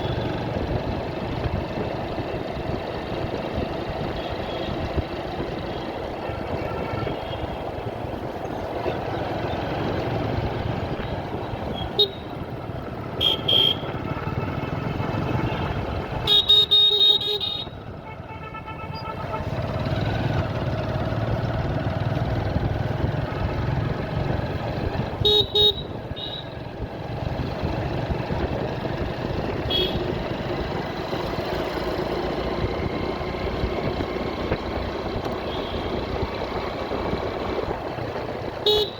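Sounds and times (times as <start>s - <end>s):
motorcycle engine running: 0.0s - 38.9s
road and traffic noise: 0.0s - 38.9s
vehicle horns honking: 6.2s - 7.8s, 11.7s - 12.4s, 13.1s - 19.6s, 25.1s - 26.6s, 29.6s - 30.2s, 35.4s - 36.0s, 38.6s - 38.9s.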